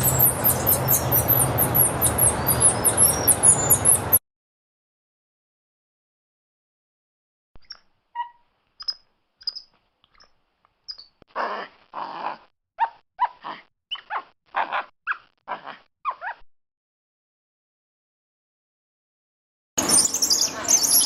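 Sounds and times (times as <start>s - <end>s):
monkey squeaking and barking: 0.0s - 4.2s, 7.6s - 11.1s, 12.8s - 16.4s, 19.8s - 21.0s.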